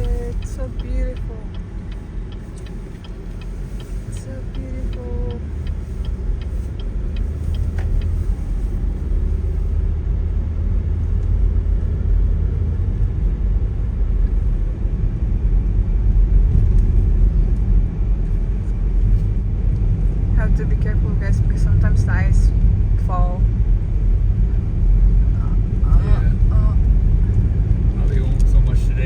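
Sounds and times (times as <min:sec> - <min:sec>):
light rapid ticking: 0:00.0 - 0:08.6
car driving rumble: 0:00.0 - 0:29.0.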